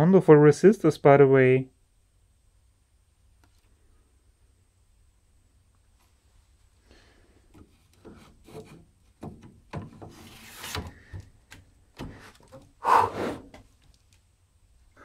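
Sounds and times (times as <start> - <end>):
knocks and clatter of metal parts: 9.2 - 10.2.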